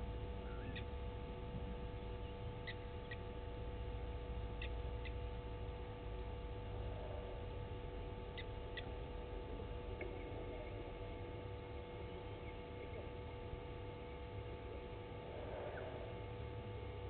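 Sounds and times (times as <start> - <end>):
electrical hum: 0.0 - 17.0
bird chirps: 0.4 - 0.9.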